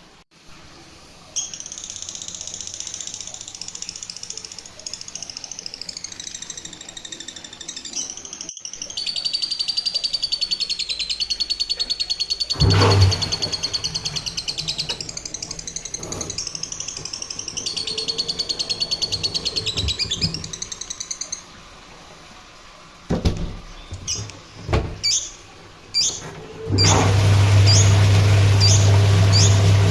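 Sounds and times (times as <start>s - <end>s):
washing machine motor hum: 12.2s - 29.9s
high squeak: 12.5s - 21.0s.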